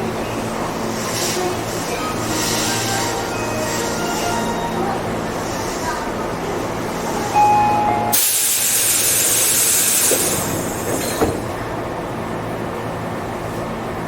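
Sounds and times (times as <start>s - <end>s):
compressed air hiss: 8.2s - 10.9s.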